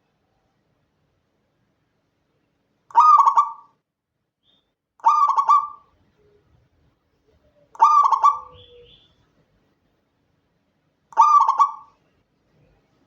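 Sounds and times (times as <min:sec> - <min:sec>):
dove cooing: 0:02.9 - 0:03.6, 0:05.0 - 0:05.8, 0:07.4 - 0:09.0, 0:11.2 - 0:12.0.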